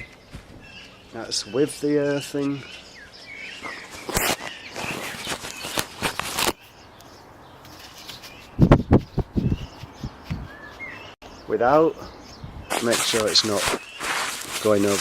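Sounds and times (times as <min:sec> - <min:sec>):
birds chirping faintly: 0:00.0 - 0:15.0
wind on microphone: 0:08.5 - 0:10.6, 0:12.3 - 0:12.8.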